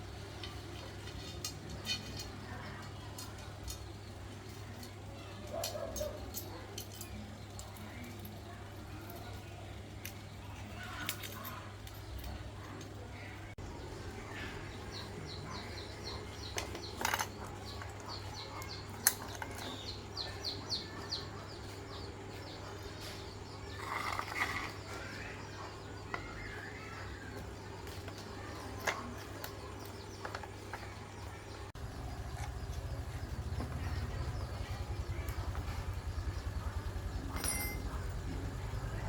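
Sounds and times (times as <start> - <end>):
bird chirping: 13.1 - 39.0
steady low hum: 30.9 - 39.0.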